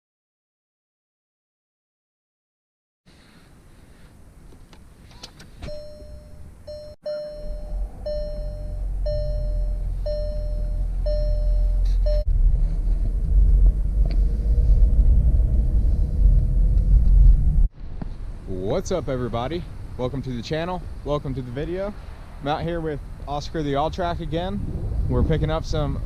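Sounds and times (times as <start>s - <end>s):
car warning chime dinging: 5.6s - 12.3s
car engine running: 6.7s - 17.7s.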